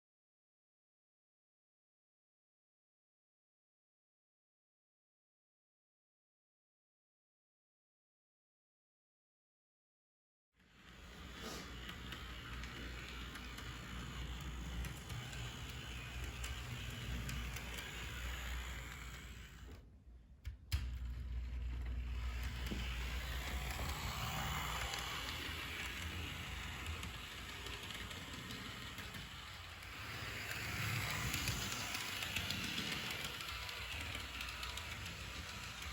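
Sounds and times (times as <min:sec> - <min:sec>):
model train motor whirring: 0:10.6 - 0:19.9, 0:20.7 - 0:35.9.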